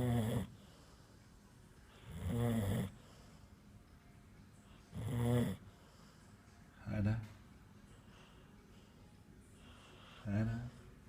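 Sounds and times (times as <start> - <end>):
dog snoring: 0.0 - 1.0, 1.9 - 3.4, 4.7 - 6.2.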